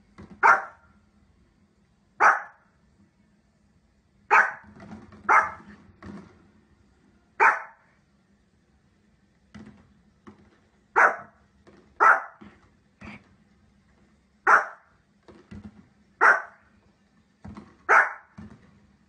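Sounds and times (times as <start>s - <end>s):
dog barking: 0.4s - 0.8s, 2.2s - 2.7s, 4.3s - 5.8s, 7.4s - 7.9s, 10.9s - 11.4s, 12.0s - 12.5s, 14.4s - 14.9s, 16.2s - 16.7s, 17.9s - 18.4s.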